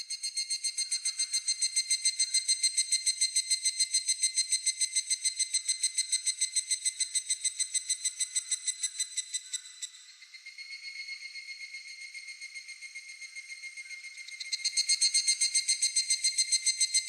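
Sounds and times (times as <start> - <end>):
cicada calling: 0.3 - 17.0.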